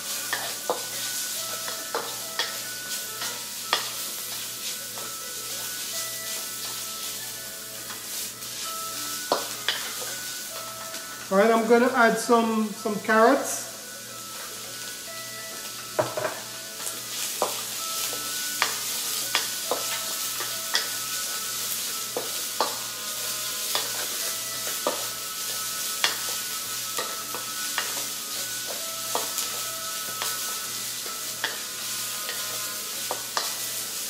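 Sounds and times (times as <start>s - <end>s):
food sizzling in a wok: 0.0s - 34.0s
spatula scraping and clinking on wok: 8.7s - 11.1s, 16.0s - 34.0s.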